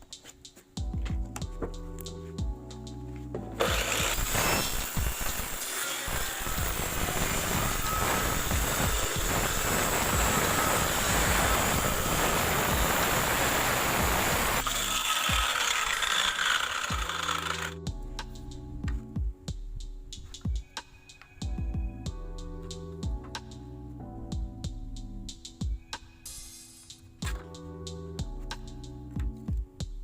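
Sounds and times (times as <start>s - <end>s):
power tool rattling: 3.6s - 17.8s.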